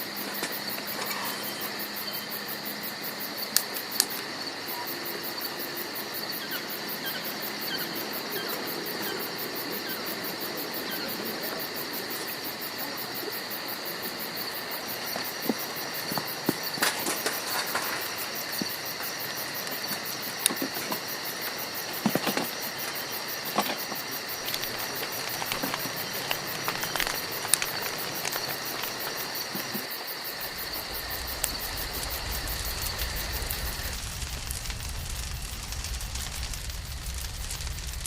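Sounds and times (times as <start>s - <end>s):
insects chirring: 0.0s - 38.0s
campfire crackling and popping: 2.6s - 4.4s, 13.8s - 38.0s
low rumble: 30.7s - 38.0s.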